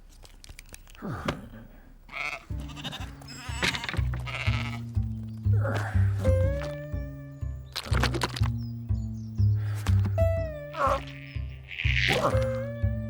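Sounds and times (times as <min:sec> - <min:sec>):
cartoon sheep bleating: 0:02.1 - 0:04.9, 0:10.6 - 0:13.0
background music with bass notes: 0:02.5 - 0:13.0.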